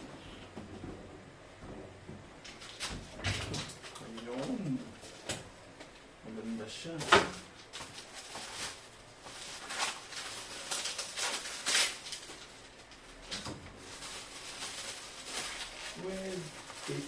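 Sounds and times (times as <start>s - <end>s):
packaging rustling: 6.9s - 17.0s.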